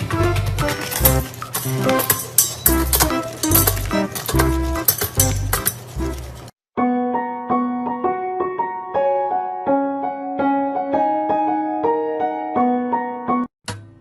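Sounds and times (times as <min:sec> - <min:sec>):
gentle piano melody: 0:06.8 - 0:13.5.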